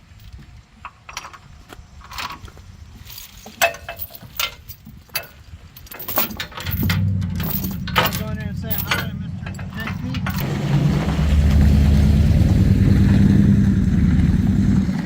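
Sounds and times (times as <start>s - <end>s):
metal chain clinking: 1.1s - 10.6s
low engine hum: 6.6s - 15.0s.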